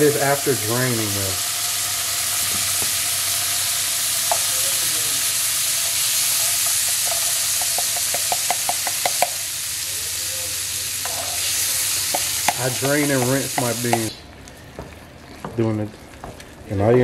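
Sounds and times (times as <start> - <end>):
beans sizzling in a pan: 0.0 - 15.5.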